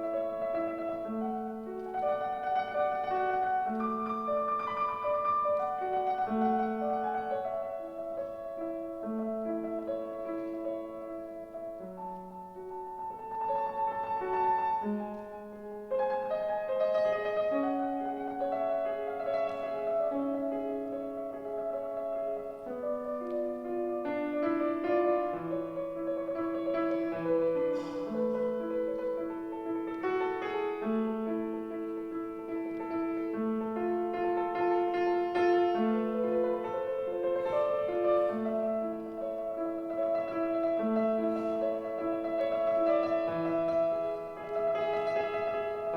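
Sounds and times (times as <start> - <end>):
slow classical piano: 0.0 - 45.9.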